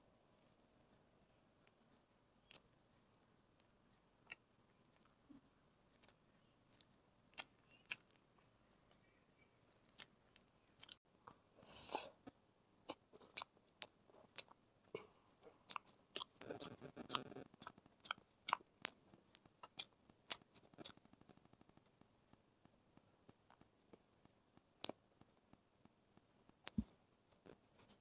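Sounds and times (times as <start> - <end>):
mouth chewing: 6.0 - 8.2, 9.7 - 11.0, 12.9 - 21.0.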